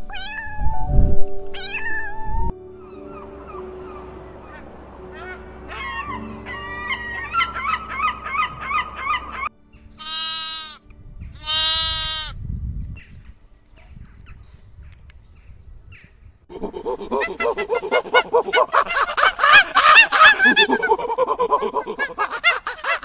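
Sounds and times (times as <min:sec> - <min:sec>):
gull yelping calls: 0:02.8 - 0:10.8, 0:16.5 - 0:23.0
lamb bleating: 0:10.0 - 0:10.8, 0:11.4 - 0:12.4.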